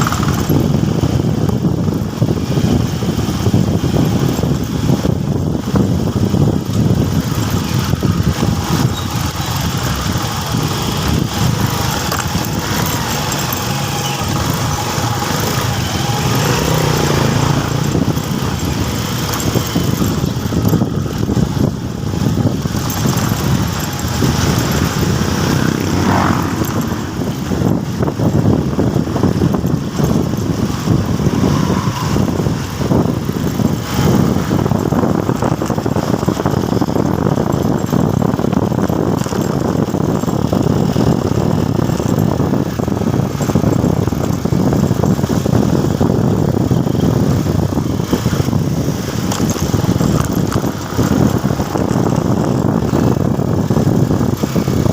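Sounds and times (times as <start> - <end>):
motorcycle engine rumbling: 0.0 - 54.9.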